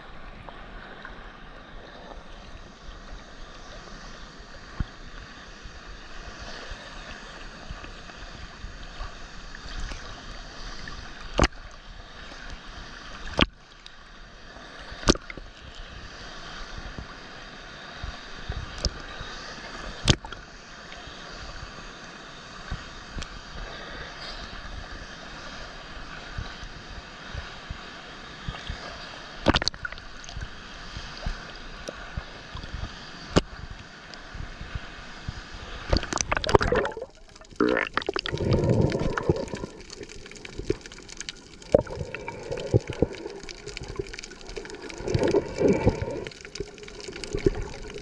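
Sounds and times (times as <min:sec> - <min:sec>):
waterfall rushing: 0:36.1 - 0:48.0.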